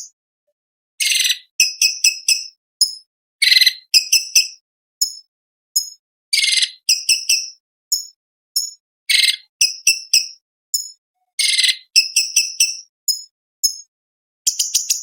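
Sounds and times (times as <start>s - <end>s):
harsh rasping bird calls: 1.0s - 2.5s, 6.4s - 7.6s, 9.1s - 10.4s, 11.4s - 12.9s
bird chipping song: 1.0s - 13.9s, 14.5s - 15.0s.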